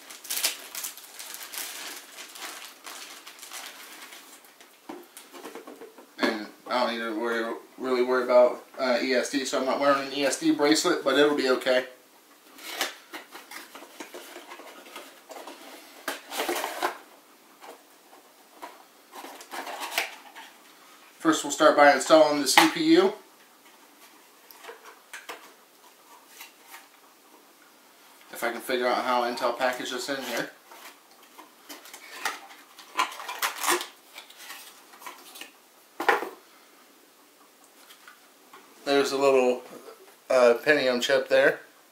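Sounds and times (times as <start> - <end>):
packaging rustle: 0.0 - 5.8, 30.4 - 35.6.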